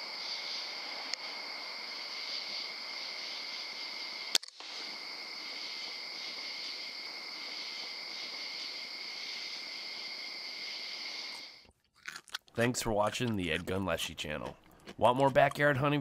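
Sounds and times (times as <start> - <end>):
crickets and night insects chirping: 0.0 - 11.7
single sharp click: 4.3 - 4.7.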